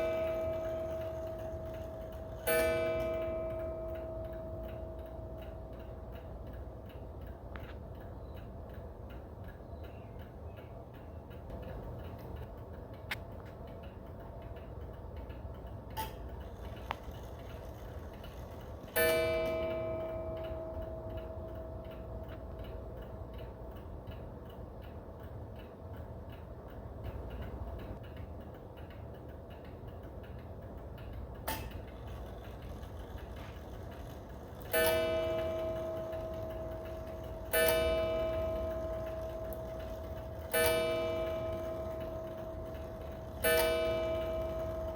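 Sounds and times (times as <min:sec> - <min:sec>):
clock striking ringing tone: 0:00.0 - 0:07.4, 0:16.0 - 0:23.2, 0:31.4 - 0:44.9
clock ticking: 0:00.0 - 0:44.9.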